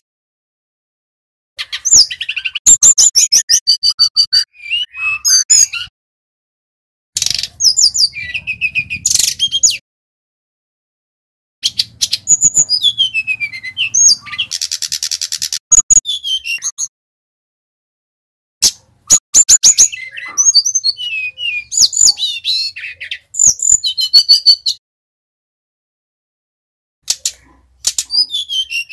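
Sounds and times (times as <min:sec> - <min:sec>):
bird singing sliding whistles: 0:01.6 - 0:05.9, 0:07.2 - 0:09.8, 0:11.6 - 0:16.9, 0:18.6 - 0:24.8, 0:27.2 - 0:28.9.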